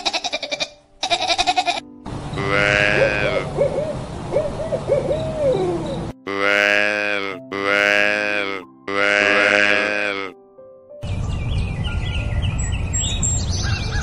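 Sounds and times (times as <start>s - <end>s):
loud steady animal call: 2.4s - 3.8s, 6.3s - 10.3s
animal wavering call: 2.6s - 6.0s.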